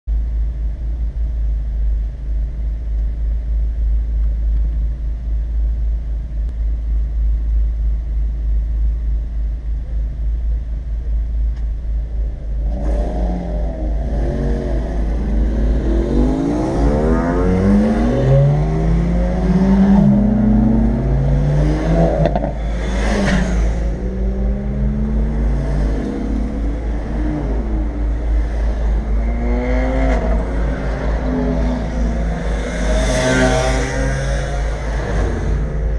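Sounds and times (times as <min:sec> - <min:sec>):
car engine idle drone: 0:00.1 - 0:35.9
car engines revving nearby: 0:12.6 - 0:35.9.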